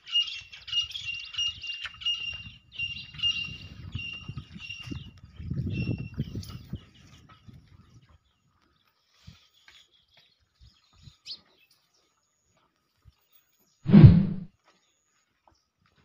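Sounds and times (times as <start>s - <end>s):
small birds chirping: 0.0s - 13.8s
soft low thuds: 13.9s - 14.5s.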